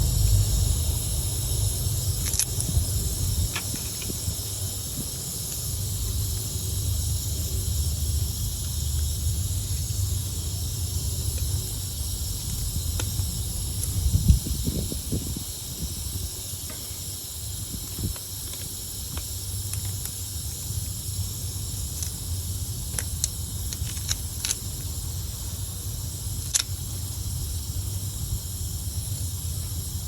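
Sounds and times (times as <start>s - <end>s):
low rumble: 0.0s - 16.3s
steady high hiss: 0.0s - 30.0s.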